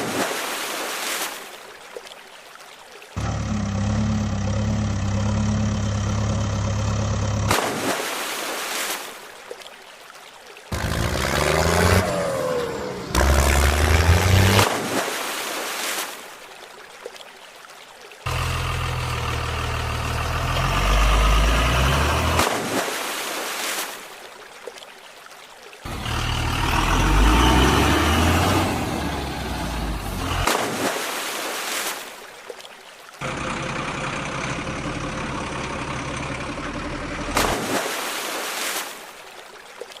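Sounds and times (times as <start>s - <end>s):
heavy vehicle engines revving: 3.2s - 7.7s, 10.7s - 14.7s, 18.3s - 22.7s, 25.9s - 30.6s, 33.2s - 37.7s.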